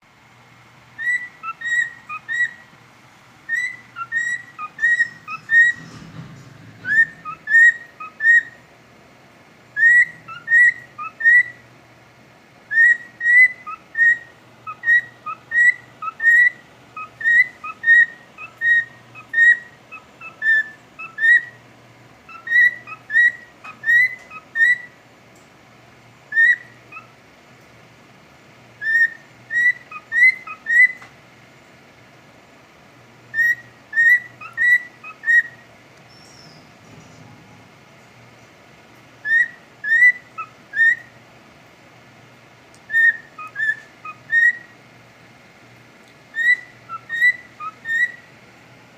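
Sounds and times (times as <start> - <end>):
cockatiel whistling: 1.0 - 2.7, 3.5 - 5.9, 6.8 - 8.6, 9.8 - 11.6, 12.7 - 21.6, 22.3 - 25.0, 26.3 - 27.1, 28.8 - 31.1, 33.3 - 36.7, 39.2 - 41.2, 42.9 - 44.7, 46.3 - 48.3.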